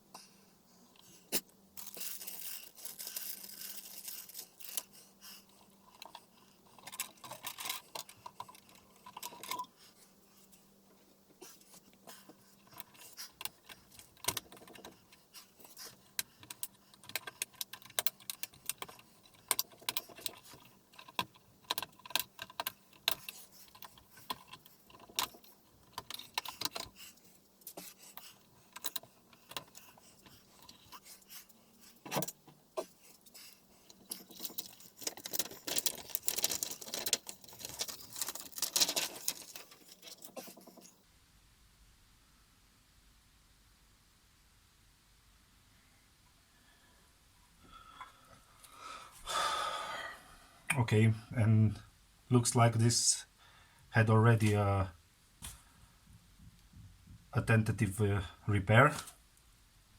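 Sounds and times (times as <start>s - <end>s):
parts and tools clicking and scraping: 1.0s - 41.0s.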